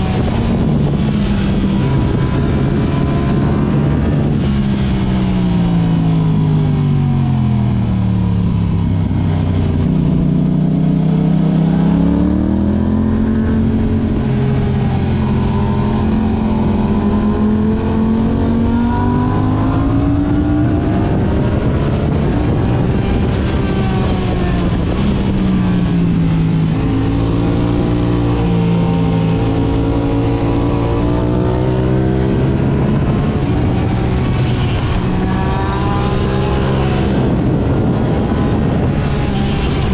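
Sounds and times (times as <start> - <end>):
motorcycle engine revving: 0.0 - 39.9
wind rushing: 8.6 - 39.9.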